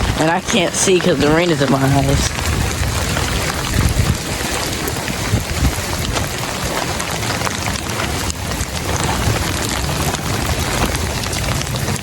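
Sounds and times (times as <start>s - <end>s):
low rumble: 0.0s - 6.6s
heavy rain pouring: 0.0s - 12.0s
sharp raindrop hits: 0.0s - 12.0s.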